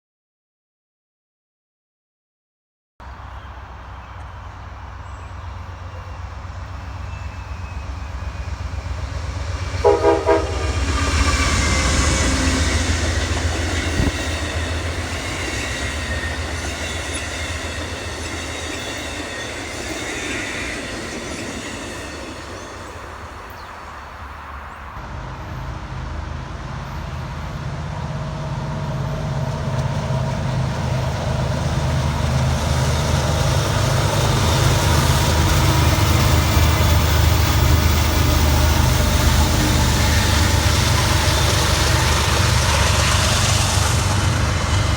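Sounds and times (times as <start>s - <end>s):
high ringing of rail cars: 3.0s - 44.9s
train rumble: 3.0s - 44.9s
wheels rolling on rail: 3.0s - 44.9s
train horn: 9.6s - 20.8s, 34.9s - 44.0s.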